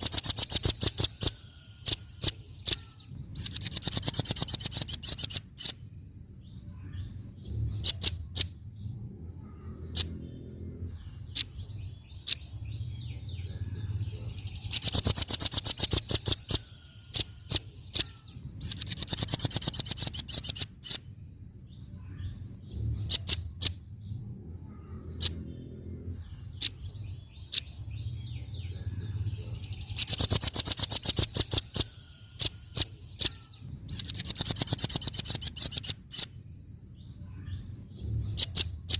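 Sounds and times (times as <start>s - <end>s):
bird chips: 0.0s - 5.8s, 14.6s - 21.1s, 29.9s - 36.5s
bird trilling: 0.0s - 8.7s, 9.4s - 21.2s, 22.0s - 36.6s, 37.3s - 38.9s.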